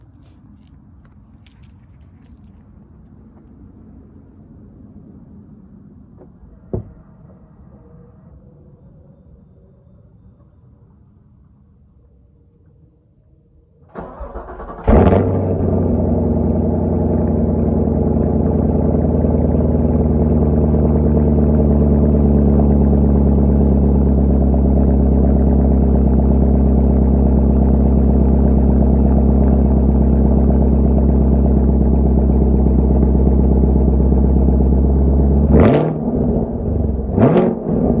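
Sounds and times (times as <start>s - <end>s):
car engine idling and revving: 14.0s - 38.0s.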